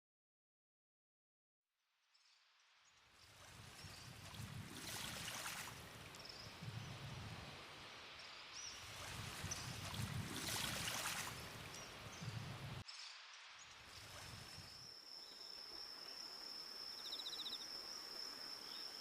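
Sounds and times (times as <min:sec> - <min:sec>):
faint high chirps: 0:11.7 - 0:19.0.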